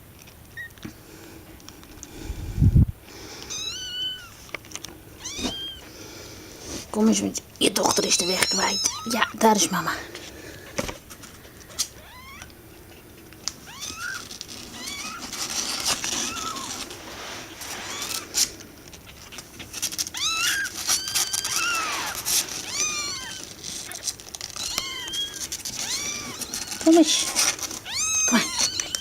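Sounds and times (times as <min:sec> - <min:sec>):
kittens mewing: 0:03.1 - 0:29.0.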